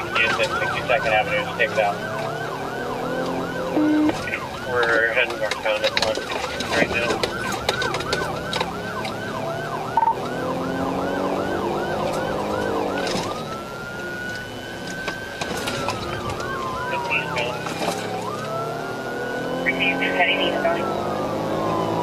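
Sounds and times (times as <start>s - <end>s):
police car siren: 0.0s - 22.0s.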